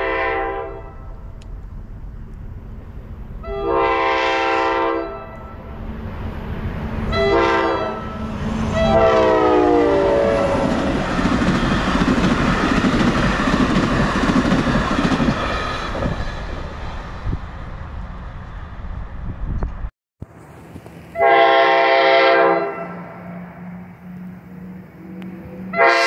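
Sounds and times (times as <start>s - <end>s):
train horn blasts: 0.0s - 1.4s, 3.4s - 5.7s, 7.1s - 10.9s, 21.1s - 26.0s
train wheels rumbling and clattering: 5.3s - 21.2s.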